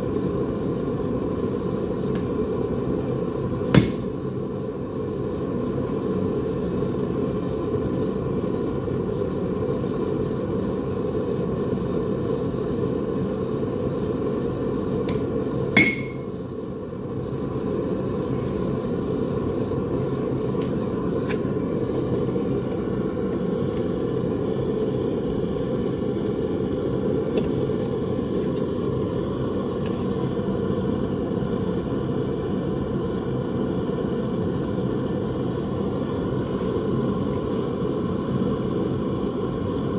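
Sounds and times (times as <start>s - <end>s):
hammer blow on metal: 15.1s - 16.3s.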